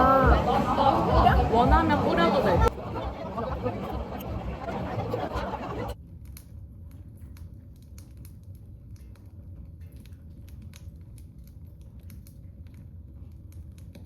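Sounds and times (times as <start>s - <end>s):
firewood crackling in stove: 6.2s - 14.0s.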